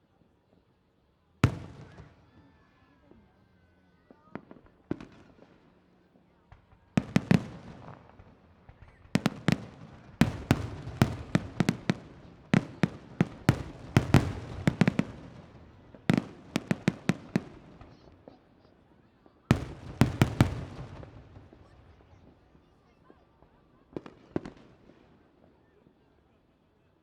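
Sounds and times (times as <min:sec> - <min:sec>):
fireworks bangs: 0:01.4 - 0:02.6, 0:06.5 - 0:18.4, 0:19.5 - 0:22.5.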